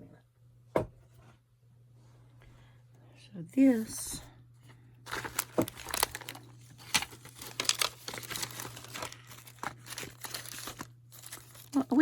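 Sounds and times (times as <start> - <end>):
packets crinkling and rustling: 5.1 - 12.0.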